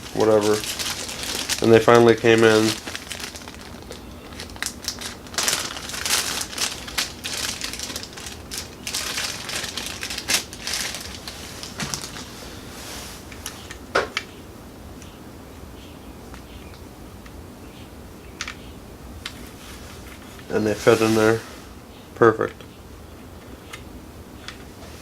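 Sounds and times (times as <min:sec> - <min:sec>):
packaging crinkling and rustling: 0:00.0 - 0:13.8.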